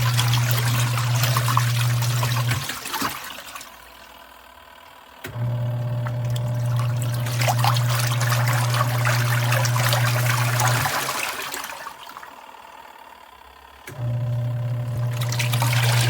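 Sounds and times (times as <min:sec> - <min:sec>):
washing machine motor humming: 0:00.0 - 0:16.0
water swishing and trickling: 0:06.1 - 0:12.4.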